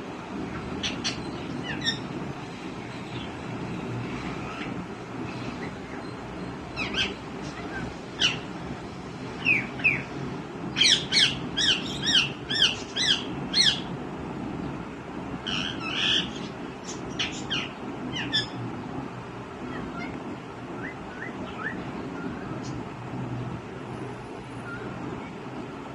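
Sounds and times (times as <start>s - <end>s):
parrot squawking: 6.8s - 8.4s, 10.8s - 13.9s, 15.4s - 18.6s.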